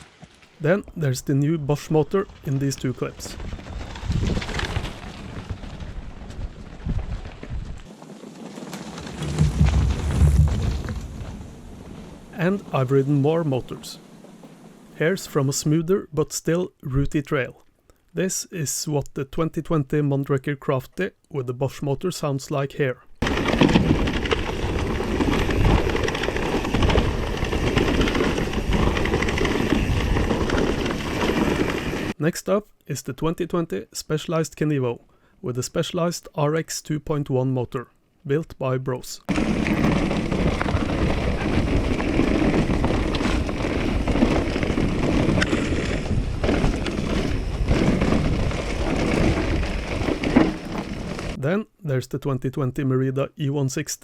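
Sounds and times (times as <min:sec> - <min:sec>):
tyre and trail noise: 0:00.0 - 0:16.0, 0:23.2 - 0:32.2, 0:39.3 - 0:51.4
wind on microphone: 0:03.4 - 0:07.9
bike rattling chatter: 0:23.2 - 0:32.2, 0:39.3 - 0:51.4.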